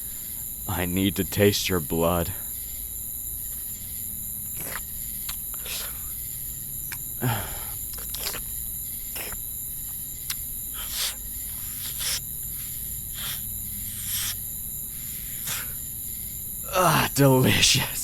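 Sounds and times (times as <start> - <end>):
crickets chirping: 0.0 - 18.0
close mouth sounds: 4.5 - 6.1, 6.9 - 8.5, 9.1 - 9.5, 10.2 - 14.4.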